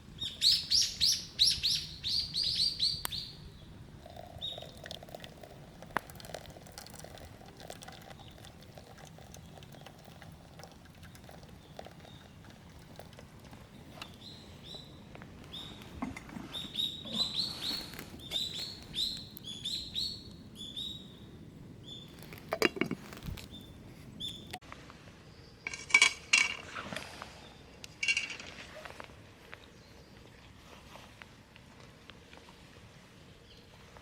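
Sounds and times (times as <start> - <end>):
small bird chirping: 0.2 - 3.7, 16.5 - 21.2
camp cookware clanking: 22.2 - 23.4, 25.7 - 26.6.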